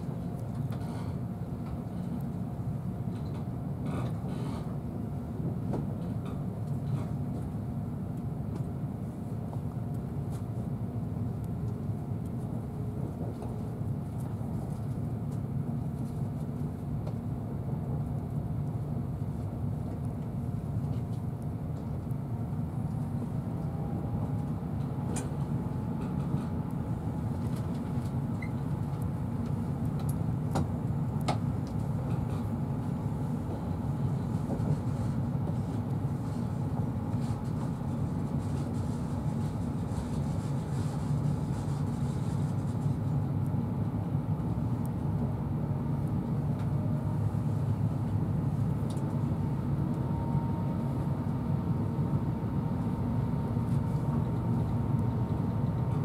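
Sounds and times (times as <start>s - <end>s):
train wheels rumbling on rails: 8.2s - 43.1s.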